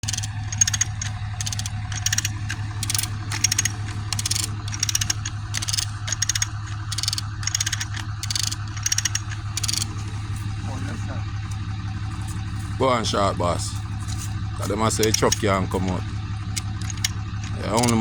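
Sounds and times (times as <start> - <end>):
hand ratchet clicking: 0.0 - 10.0, 14.1 - 15.5, 16.4 - 18.0
steady low hum: 0.0 - 18.0.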